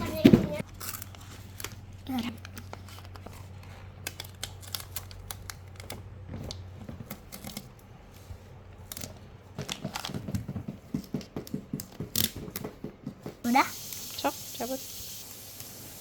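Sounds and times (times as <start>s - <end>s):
light crinkling and tearing: 0.6s - 7.8s
stickers being peeled: 0.6s - 7.9s, 8.5s - 10.2s.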